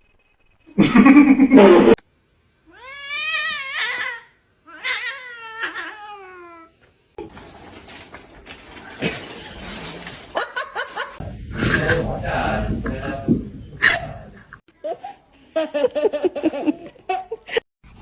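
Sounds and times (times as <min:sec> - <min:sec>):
rustling: 0:07.2 - 0:11.2.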